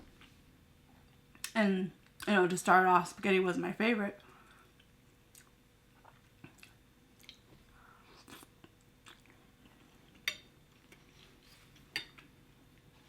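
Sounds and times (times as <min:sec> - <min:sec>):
chewing and mouth sounds: 0:04.8 - 0:07.5, 0:08.2 - 0:11.3.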